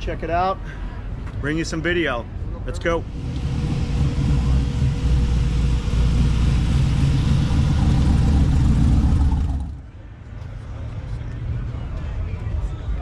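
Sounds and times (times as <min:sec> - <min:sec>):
car engine running: 0:03.0 - 0:09.9.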